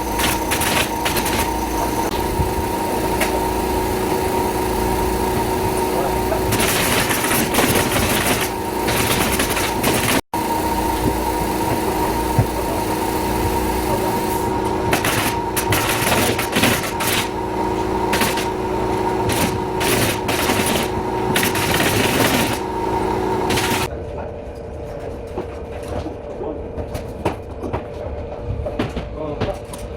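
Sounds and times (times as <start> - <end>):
machine humming: 0.0 - 23.9.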